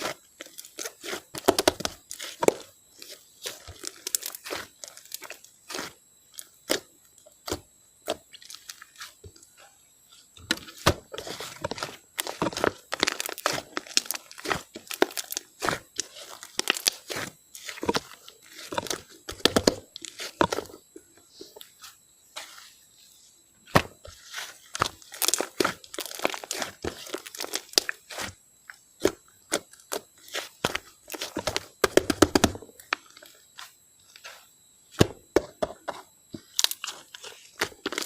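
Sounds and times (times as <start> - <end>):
slime crackling and popping: 0.0 - 6.8, 11.1 - 20.8, 24.2 - 28.4, 29.0 - 33.7, 36.4 - 38.0.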